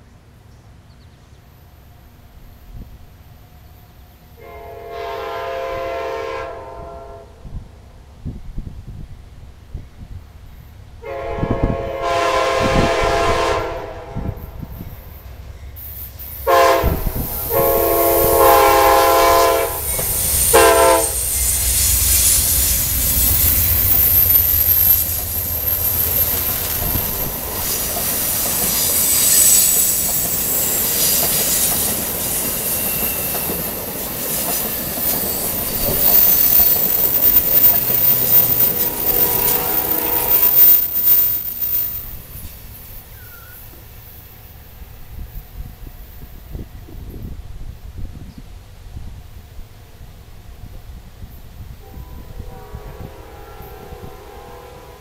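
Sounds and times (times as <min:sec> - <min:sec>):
train horn blasts: 0:04.4 - 0:07.6, 0:11.0 - 0:15.0, 0:16.4 - 0:27.8, 0:38.2 - 0:41.0, 0:51.8 - 0:55.0
train wheels on rails clickety-clack: 0:11.4 - 0:48.5
high wheel squeal: 0:17.1 - 0:44.4.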